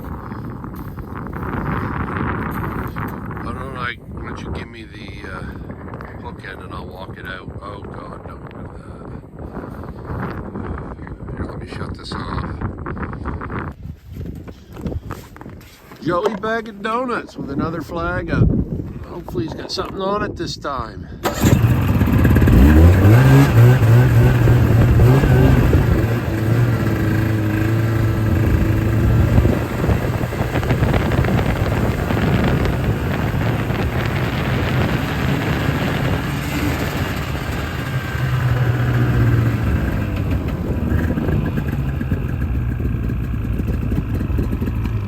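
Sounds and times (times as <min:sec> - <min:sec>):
off-road vehicle engine: 0:00.0 - 0:04.5, 0:21.2 - 0:45.0.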